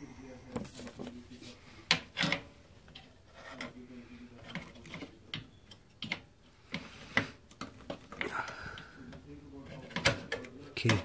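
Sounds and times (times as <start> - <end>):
hand tools clicking and knocking: 1.9 - 3.8, 4.4 - 11.0.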